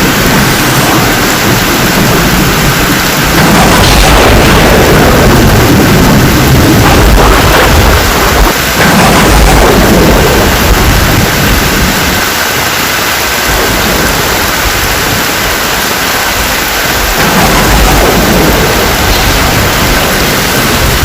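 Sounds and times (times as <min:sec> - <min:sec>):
deep low rumble: 0:00.0 - 0:12.3, 0:17.0 - 0:21.0
heavy rain hissing: 0:00.0 - 0:21.0.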